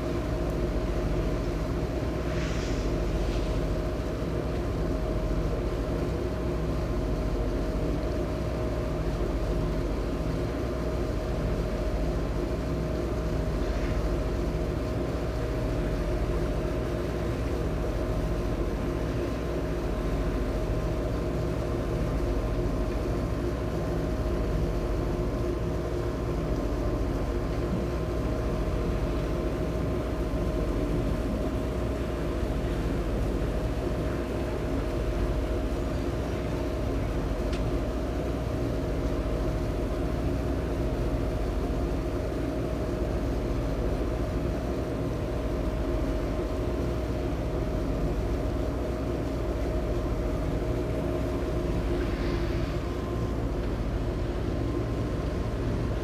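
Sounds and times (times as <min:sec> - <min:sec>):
ferry engines droning: 0:50.8 - 0:56.0.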